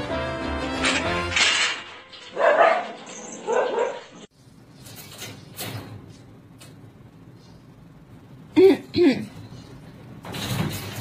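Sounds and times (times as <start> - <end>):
background music: 0.0 - 2.6
dog barking: 2.3 - 4.2.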